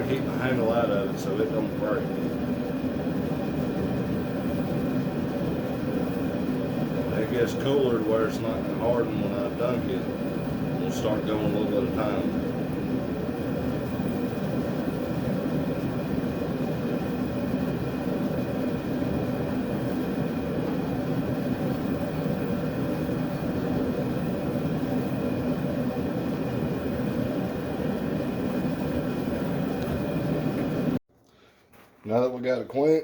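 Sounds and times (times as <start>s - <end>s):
forge running: 0.0s - 31.0s.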